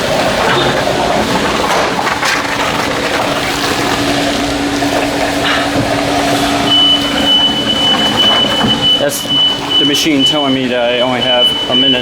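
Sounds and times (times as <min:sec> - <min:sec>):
car wash equipment rushing: 0:00.0 - 0:12.0
high steady warning tone: 0:04.6 - 0:12.0.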